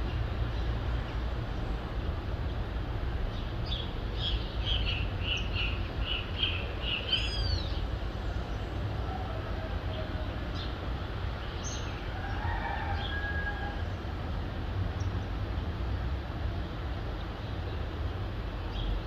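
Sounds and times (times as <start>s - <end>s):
low rumble of city noise: 0.0s - 19.0s
bird calling: 4.7s - 7.8s.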